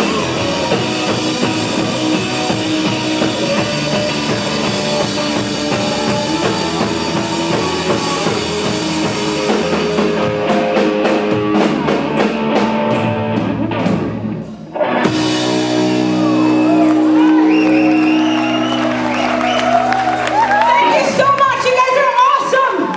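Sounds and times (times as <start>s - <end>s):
drum kit: 0.0s - 21.8s
electric guitar: 0.0s - 21.8s
rock band playing: 0.0s - 22.7s.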